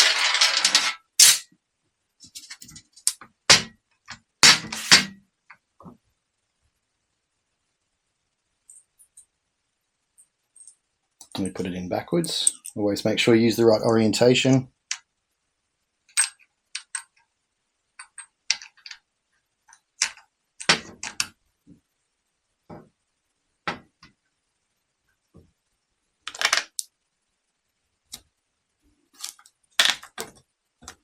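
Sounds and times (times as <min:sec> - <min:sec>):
small metal parts clicking: 0:12.2 - 0:12.8.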